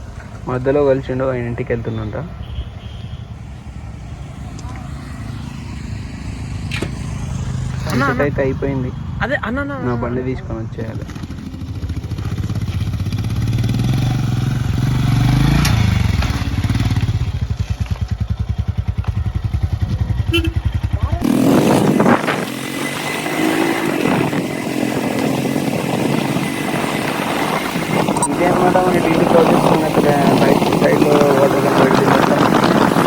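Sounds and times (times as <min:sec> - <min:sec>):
motorcycle engine running: 0:04.3 - 0:33.0
steady rushing noise: 0:20.9 - 0:33.0.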